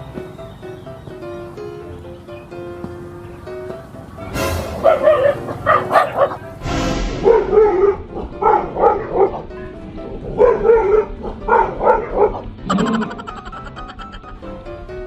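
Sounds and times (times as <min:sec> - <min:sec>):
background music: 0:00.0 - 0:15.0
dog barking: 0:04.7 - 0:06.5, 0:07.2 - 0:12.5.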